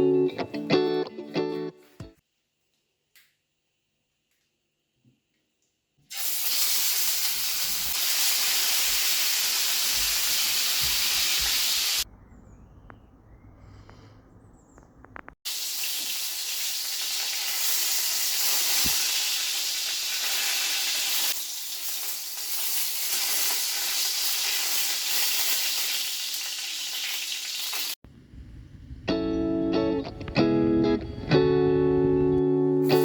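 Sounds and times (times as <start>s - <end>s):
food sizzling in a pan: 6.1s - 12.0s, 15.4s - 28.0s.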